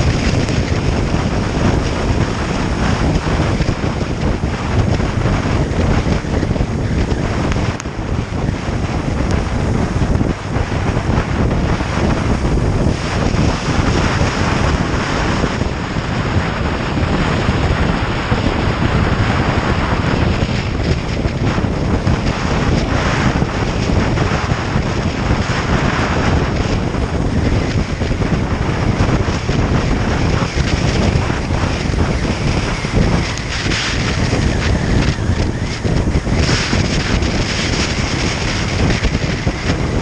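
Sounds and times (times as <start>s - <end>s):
motorcycle running: 0.0s - 40.0s
wind roaring over microphone: 0.0s - 40.0s.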